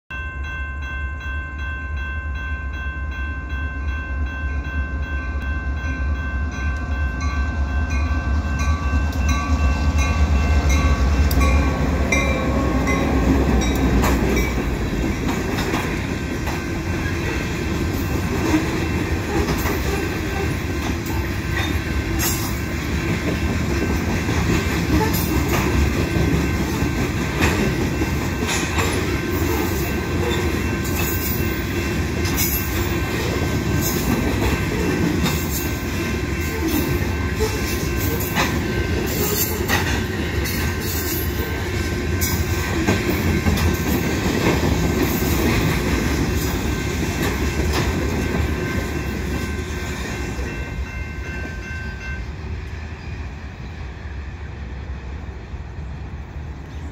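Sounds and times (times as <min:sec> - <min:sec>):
level-crossing bell ringing: 0:00.1 - 0:15.6, 0:25.8 - 0:44.0, 0:47.4 - 0:52.3
diesel locomotive engine rumble: 0:00.2 - 0:56.9
train wheels clacking over rail joints: 0:10.1 - 0:50.5.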